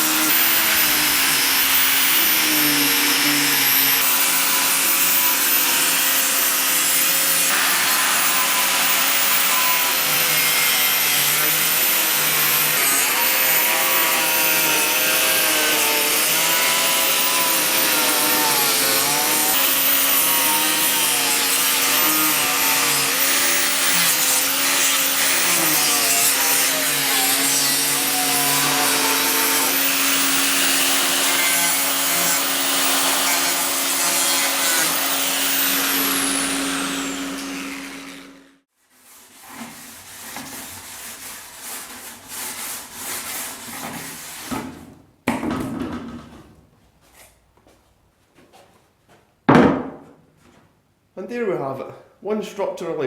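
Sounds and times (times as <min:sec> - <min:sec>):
power tool running under load: 0:00.0 - 0:38.6
rubbing and scraping: 0:38.8 - 0:44.9
sharp knock: 0:49.5 - 0:50.2.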